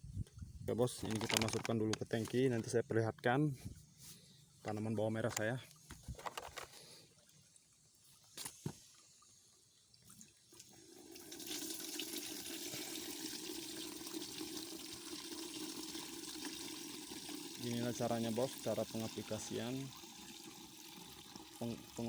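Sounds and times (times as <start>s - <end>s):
water pouring into tank: 9.9s - 22.0s.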